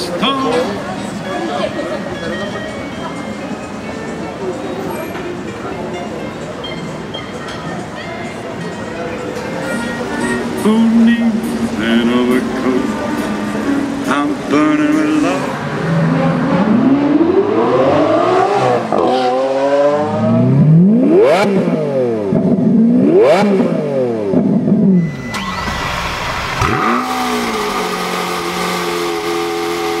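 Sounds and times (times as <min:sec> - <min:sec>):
car engine revving: 0:10.2 - 0:30.0.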